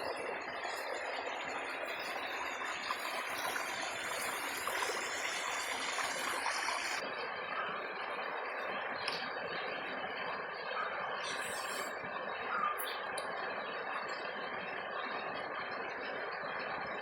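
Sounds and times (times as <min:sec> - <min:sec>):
river flowing: 0:00.0 - 0:07.1.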